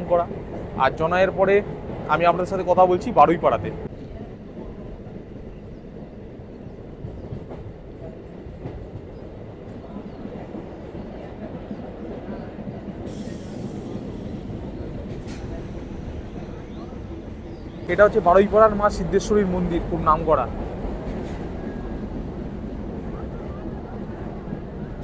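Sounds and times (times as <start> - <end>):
train wheels rumbling on track: 0.0 - 25.0
rushing hiss: 12.9 - 16.7.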